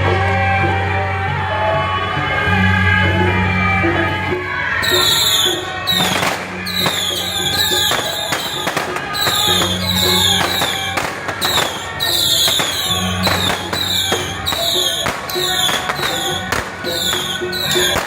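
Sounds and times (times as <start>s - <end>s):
loud procession music: 0.0s - 18.0s
firecrackers cracking: 4.8s - 18.0s.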